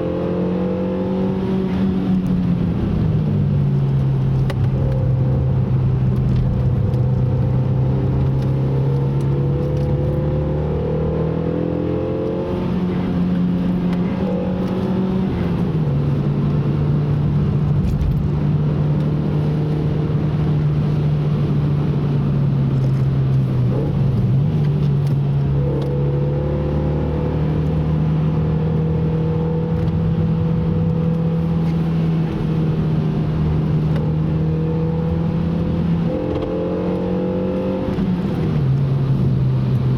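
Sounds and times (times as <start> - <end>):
car engine running: 1.1 - 10.4.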